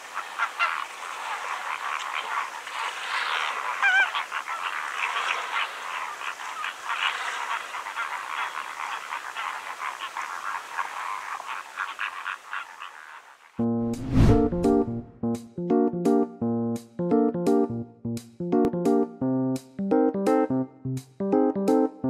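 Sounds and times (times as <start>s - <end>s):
flamingos calling: 0.0s - 13.6s.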